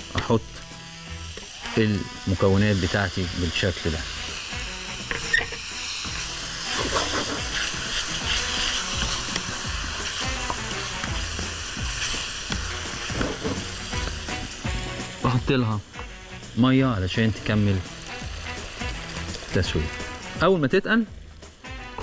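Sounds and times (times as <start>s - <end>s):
vegetables sizzling in frying pan: 0.0s - 22.0s
wooden spoon stirring and scraping: 6.7s - 11.2s, 11.9s - 14.2s.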